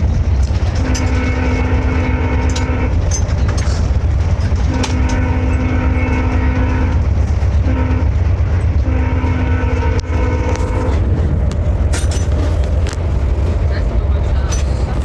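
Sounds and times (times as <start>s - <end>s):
train rumble: 0.0s - 15.0s
train horn blasts: 0.7s - 3.2s, 4.6s - 11.1s.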